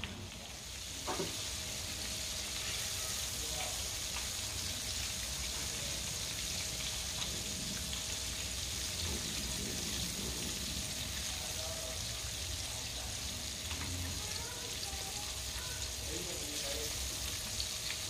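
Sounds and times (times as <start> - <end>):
chicken deep-frying in oil: 0.0 - 18.0.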